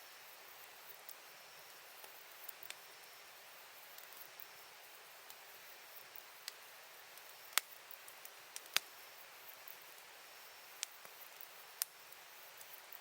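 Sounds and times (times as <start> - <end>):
faint steady hiss: 0.0 - 13.0
campfire crackling and popping: 0.7 - 2.9, 3.8 - 13.0.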